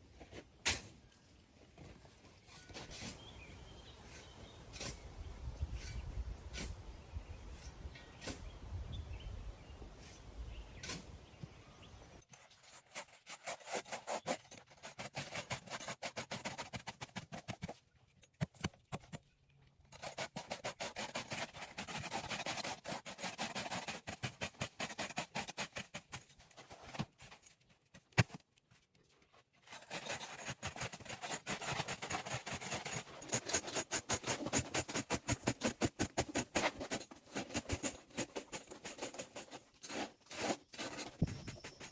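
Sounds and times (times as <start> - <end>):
hand tool scraping: 1.8 - 3.3, 12.2 - 19.2, 19.9 - 28.4, 29.3 - 41.9.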